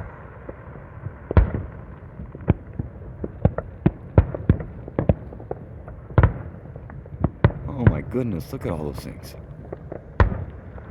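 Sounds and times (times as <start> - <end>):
fireworks bangs: 7.3 - 10.8.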